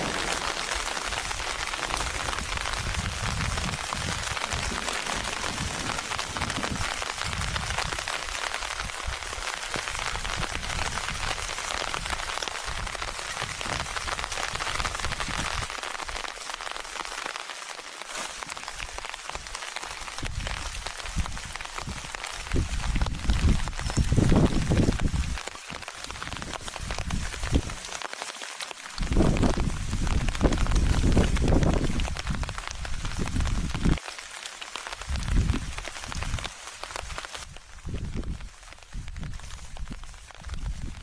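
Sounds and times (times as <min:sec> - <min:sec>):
wind buffeting microphone: 0:00.0 - 0:15.7, 0:20.2 - 0:25.4, 0:29.0 - 0:34.0, 0:35.0 - 0:41.0
heavy rain hissing: 0:00.0 - 0:41.0.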